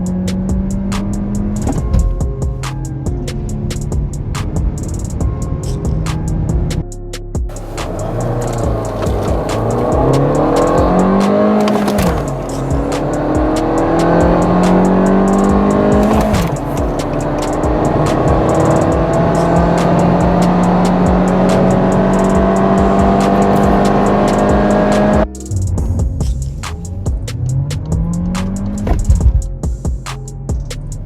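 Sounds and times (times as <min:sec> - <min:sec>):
car engine accelerating: 0:00.0 - 0:06.8, 0:07.5 - 0:29.6.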